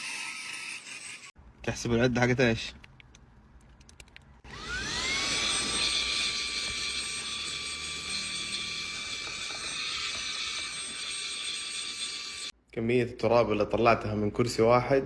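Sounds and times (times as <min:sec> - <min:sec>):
handheld vacuum motor whine: 0:04.5 - 0:12.5.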